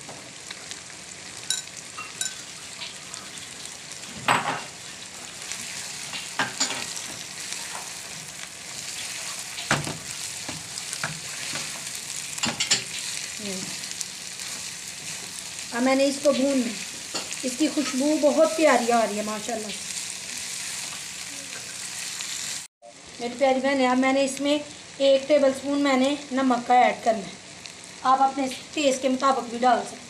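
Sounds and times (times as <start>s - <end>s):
onions and chicken sizzling: 0.0s - 30.0s
spatula stirring in wok: 1.5s - 15.7s.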